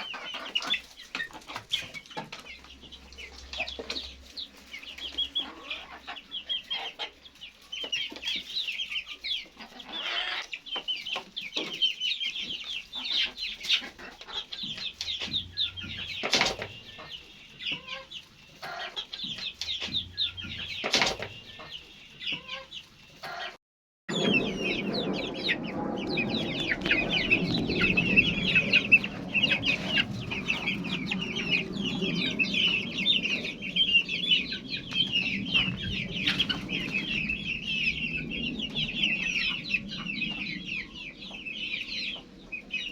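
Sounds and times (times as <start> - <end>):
chickens calling: 0.0 - 42.9
low rumble: 24.1 - 42.9.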